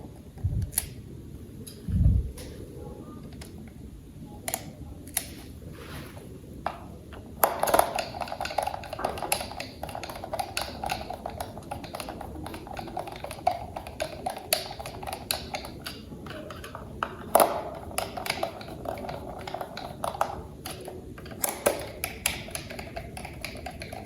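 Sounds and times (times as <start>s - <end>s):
plastic toy parts clicking: 7.4s - 24.0s.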